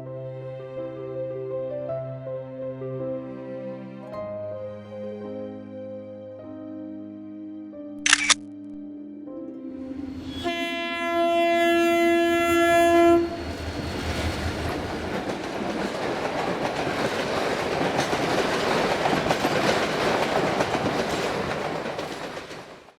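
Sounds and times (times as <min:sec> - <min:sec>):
train horn blast: 0:10.0 - 0:13.7
train running along track: 0:10.0 - 0:22.9.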